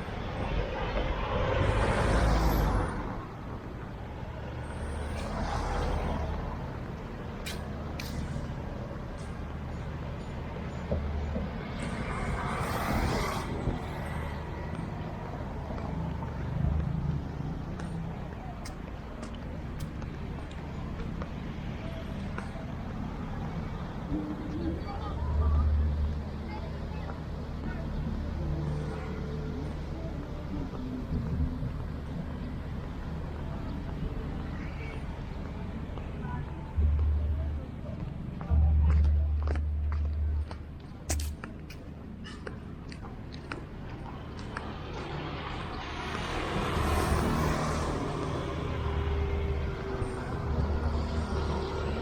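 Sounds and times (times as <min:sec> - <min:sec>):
vehicle engines rumbling: 0:00.0 - 0:52.0
vehicle passing with hiss: 0:11.7 - 0:15.0, 0:45.0 - 0:52.0.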